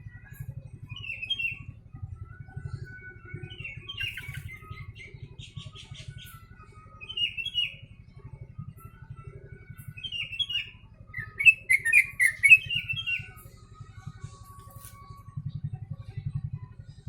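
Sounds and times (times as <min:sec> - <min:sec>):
bulbul singing chirpy runs: 0:00.0 - 0:17.0.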